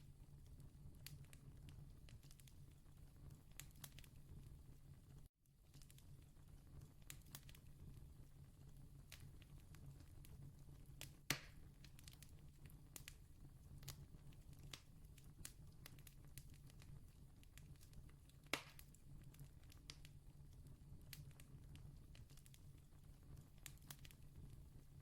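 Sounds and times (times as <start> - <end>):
campfire crackling: 0.5 - 2.6, 5.6 - 24.9
sharp pops of burning wood: 11.0 - 12.3, 17.7 - 19.0.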